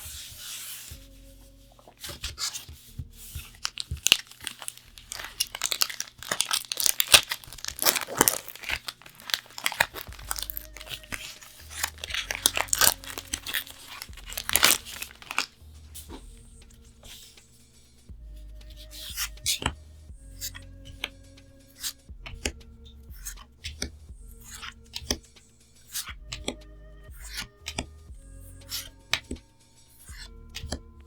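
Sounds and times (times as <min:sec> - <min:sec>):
wrapper tearing and crinkling: 0:03.4 - 0:15.6.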